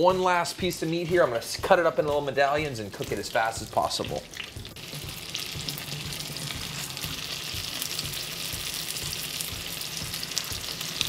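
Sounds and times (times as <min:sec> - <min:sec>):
meat frying in hot oil: 0:02.9 - 0:11.0.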